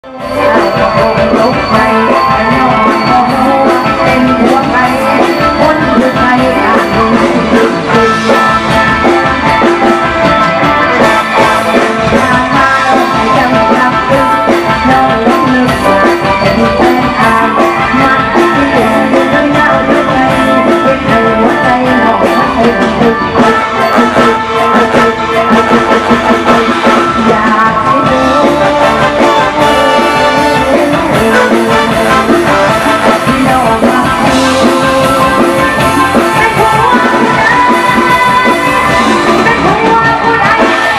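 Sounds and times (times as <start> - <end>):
loud band music with steady beat: 0.0 - 40.9.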